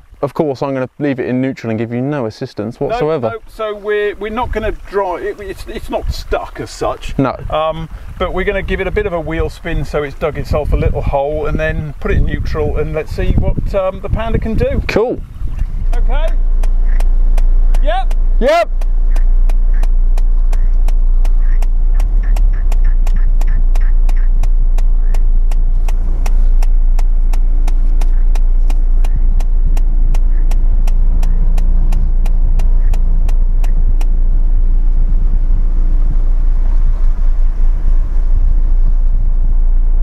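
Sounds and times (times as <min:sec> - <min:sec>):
car engine low rumble: 0:00.0 - 0:40.0
air conditioning clicking: 0:15.5 - 0:34.4.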